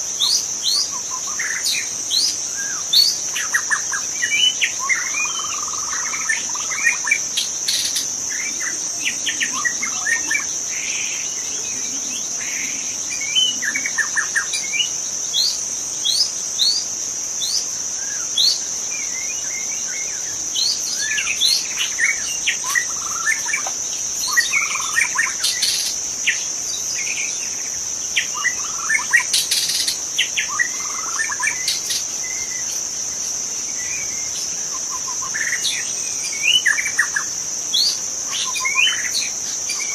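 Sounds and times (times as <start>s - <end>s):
high-pitched insect drone: 0.0s - 39.9s
bird singing whistled notes: 0.2s - 16.8s, 17.4s - 32.8s, 33.8s - 39.9s.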